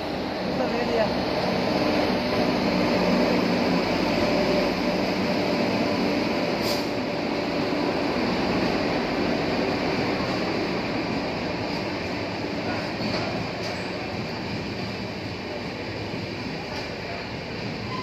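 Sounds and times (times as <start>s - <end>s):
locomotive hum: 0.0s - 18.0s
wheels rumbling on rail: 0.0s - 18.0s
short hiss: 6.6s - 7.0s.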